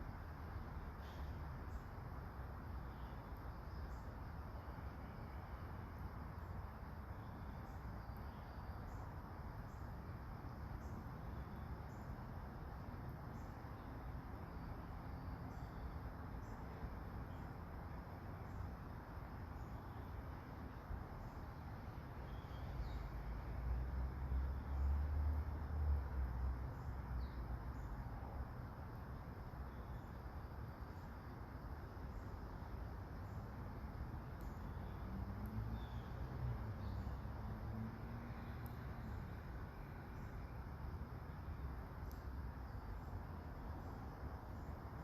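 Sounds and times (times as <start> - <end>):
faint insects chirping: 0.0 - 45.0
soft rain falling: 30.7 - 45.0
faint ticks: 34.3 - 34.7, 38.4 - 39.3, 42.0 - 42.4.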